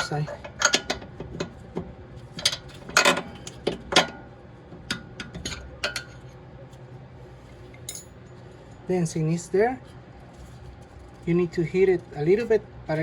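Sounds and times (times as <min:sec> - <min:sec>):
metal tools clinking and knocking: 0:07.8 - 0:08.2.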